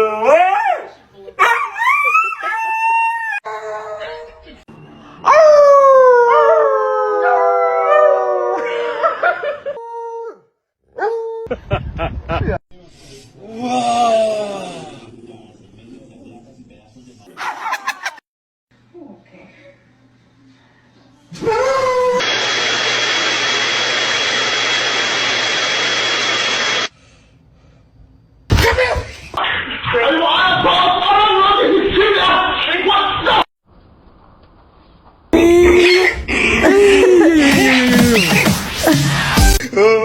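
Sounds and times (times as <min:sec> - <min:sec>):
dog howling: 0:00.0 - 0:04.3, 0:05.2 - 0:08.9
dog yelping: 0:01.4 - 0:04.1.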